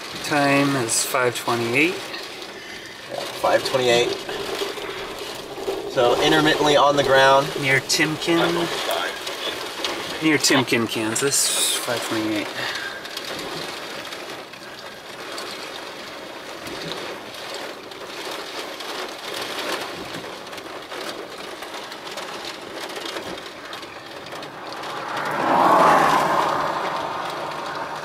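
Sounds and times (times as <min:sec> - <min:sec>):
steady rain: 0:00.0 - 0:28.0
whooshing swell: 0:24.2 - 0:28.0.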